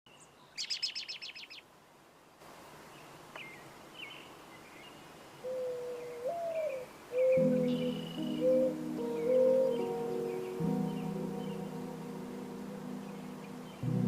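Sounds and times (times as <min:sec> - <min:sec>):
faint whistled bird calls: 0:00.1 - 0:01.6
steady background hiss: 0:00.1 - 0:14.0
bird trilling: 0:05.4 - 0:11.0
background music tone: 0:07.2 - 0:14.0.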